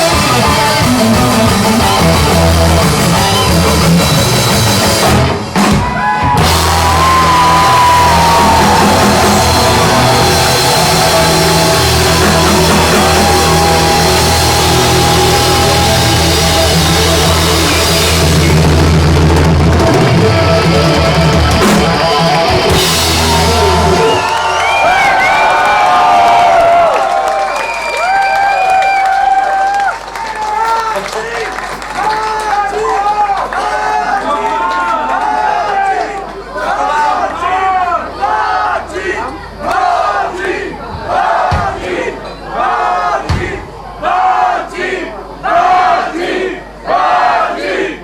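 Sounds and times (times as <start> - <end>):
hard rock band playing: 0.0 - 24.8
crowd cheering: 0.0 - 48.0.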